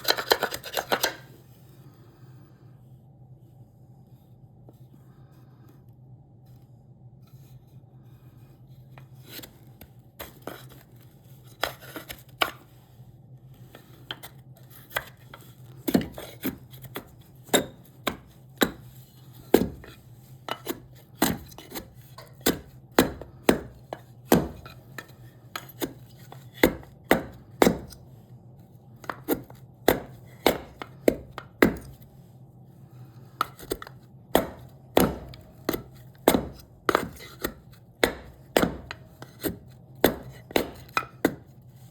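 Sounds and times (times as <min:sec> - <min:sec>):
hand tool striking wood: 0:20.5 - 0:28.0, 0:29.0 - 0:32.0, 0:33.4 - 0:41.5.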